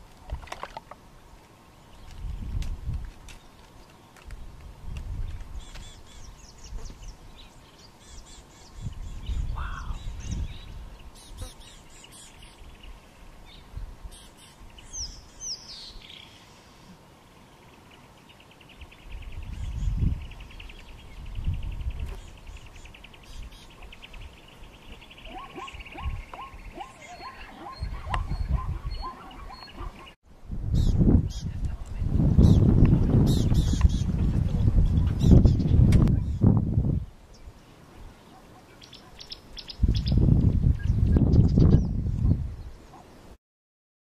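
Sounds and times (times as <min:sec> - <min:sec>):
birds chirping and calling: 0:04.9 - 0:30.2, 0:30.8 - 0:36.6, 0:37.3 - 0:43.1.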